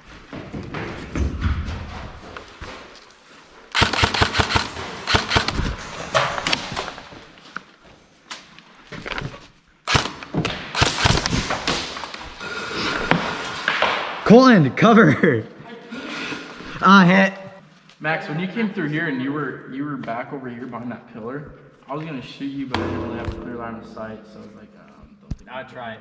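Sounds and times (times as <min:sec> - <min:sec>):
airsoft guns firing: 0:03.7 - 0:07.1, 0:09.9 - 0:12.3.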